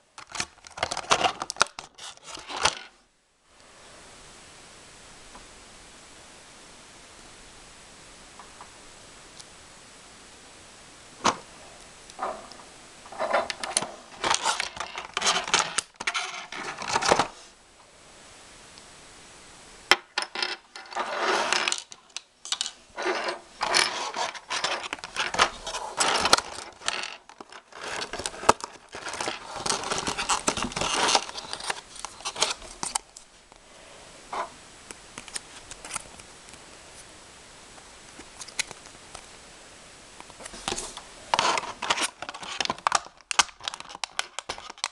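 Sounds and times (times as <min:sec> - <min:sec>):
plastic packaging rustling: 0:00.2 - 0:02.8, 0:13.0 - 0:17.5, 0:20.8 - 0:33.2, 0:40.4 - 0:44.9.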